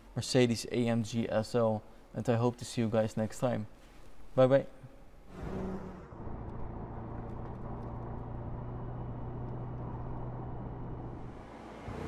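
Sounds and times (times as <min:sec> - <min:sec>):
car engine idling: 0:05.3 - 0:12.0.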